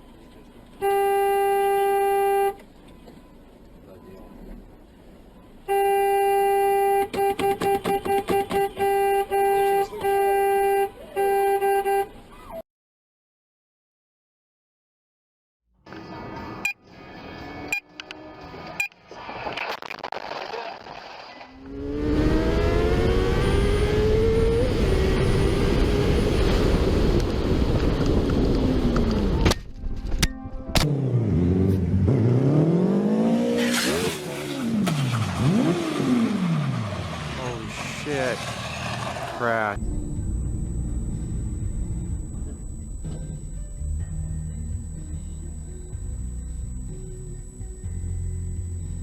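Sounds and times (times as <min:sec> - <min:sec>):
faint road noise: 0:00.0 - 0:12.6, 0:30.8 - 0:49.0
car horn honking: 0:00.8 - 0:02.6, 0:05.7 - 0:12.2
car engine accelerating: 0:21.6 - 0:29.4, 0:30.8 - 0:49.0
falling tone: 0:39.8 - 0:47.7.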